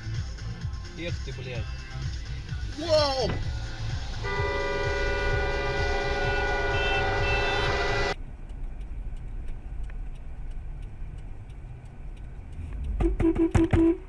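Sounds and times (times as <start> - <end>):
road rumble inside car: 0.0 - 14.0
loud vehicle horn: 4.2 - 8.2
faint ticks: 8.1 - 14.0.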